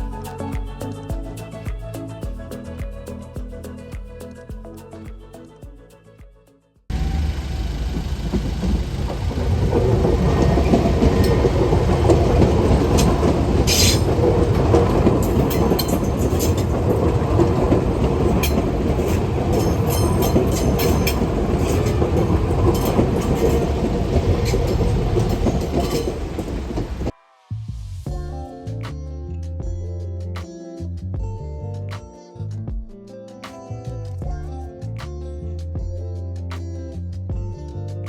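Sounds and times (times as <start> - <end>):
train rumbling along rails: 6.9 - 27.1.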